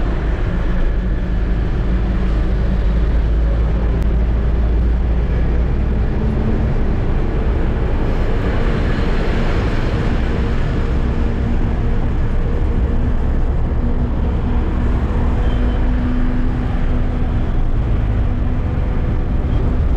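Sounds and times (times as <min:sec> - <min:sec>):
road noise: 0:00.0 - 0:19.9
truck diesel engine running: 0:00.0 - 0:19.9.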